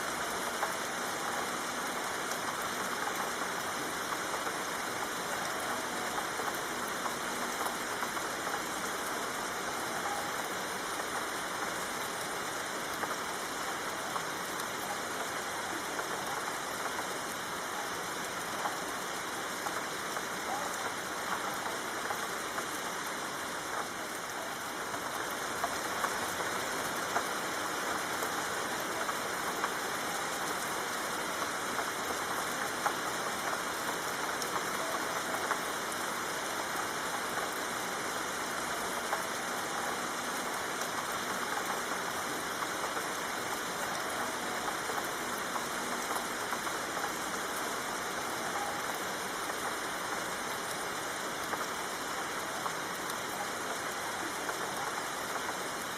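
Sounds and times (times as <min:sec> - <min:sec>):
soft rain hiss: 0:00.0 - 0:55.9
raindrop ticks: 0:00.1 - 0:55.9.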